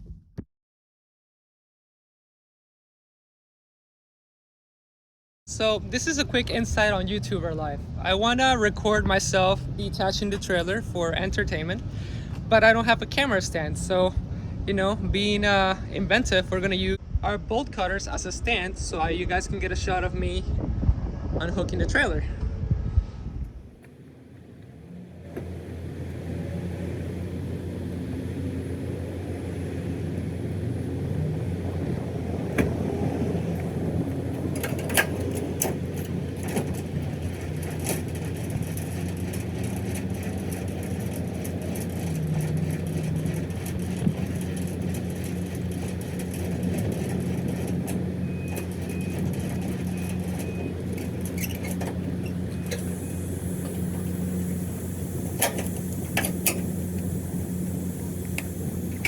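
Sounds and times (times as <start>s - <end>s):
diesel truck engine idling: 23.7s - 59.0s
metallic clanks and knocks: 34.3s - 53.0s.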